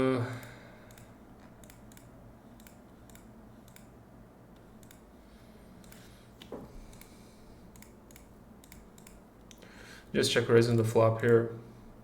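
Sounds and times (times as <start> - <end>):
low steady hum: 0.0 - 12.0
computer mouse clicks: 0.4 - 3.9, 4.5 - 5.1, 5.8 - 9.6.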